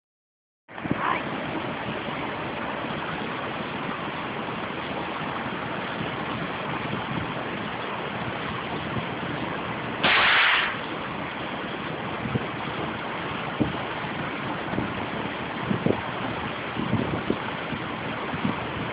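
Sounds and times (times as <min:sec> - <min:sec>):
steady rushing noise: 0:00.7 - 0:18.9
suppressed rifle shot: 0:10.0 - 0:10.8.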